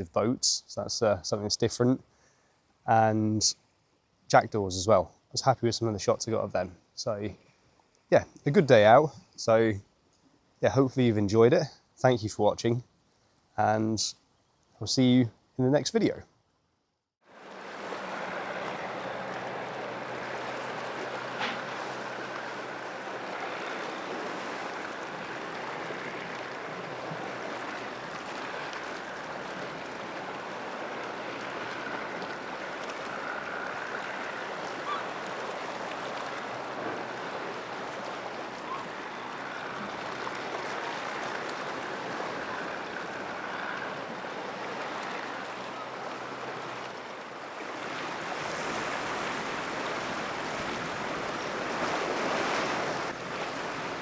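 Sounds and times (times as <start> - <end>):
wind: 0.0 - 54.0
sea surf washing ashore: 17.2 - 54.0.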